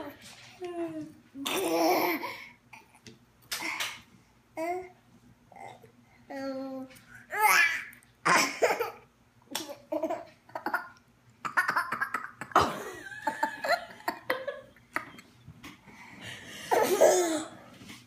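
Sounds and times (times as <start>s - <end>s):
adult laughing: 12.6s - 15.3s
toddler laughing: 16.7s - 17.5s.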